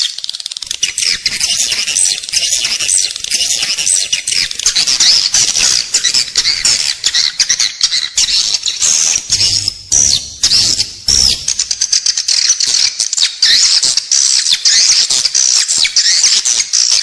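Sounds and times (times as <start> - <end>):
swiftlet chorus twittering: 0.6 - 12.4.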